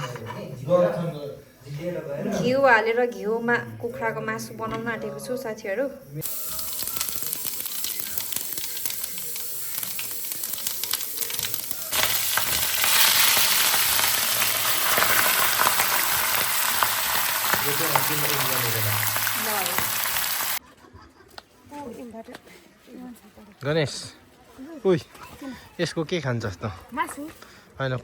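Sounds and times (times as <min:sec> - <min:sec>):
meat sizzling in hot fat: 0:06.2 - 0:20.6.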